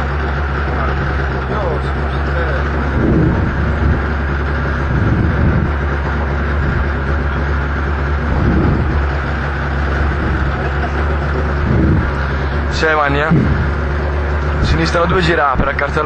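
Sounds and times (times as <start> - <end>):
car engine running at low revs: 0.0 - 16.0.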